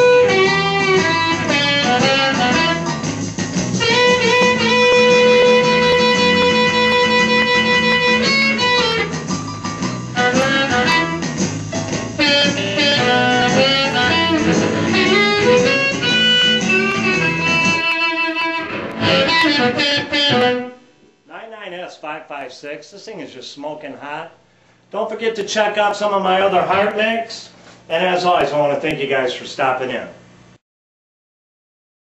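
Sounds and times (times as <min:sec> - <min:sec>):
amplified blues harmonica: 0:00.0 - 0:20.9
blues backing track with guitar: 0:00.0 - 0:21.2.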